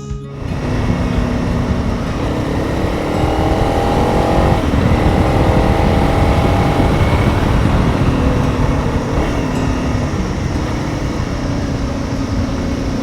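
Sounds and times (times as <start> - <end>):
motorcycle engine accelerating: 0.2 - 13.0
wind buffeting microphone: 0.3 - 13.0.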